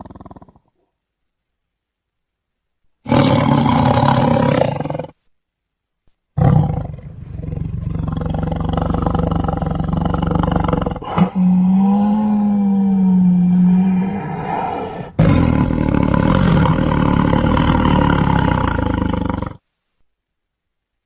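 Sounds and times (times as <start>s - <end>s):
tiger growling: 3.0s - 5.2s, 6.4s - 19.6s.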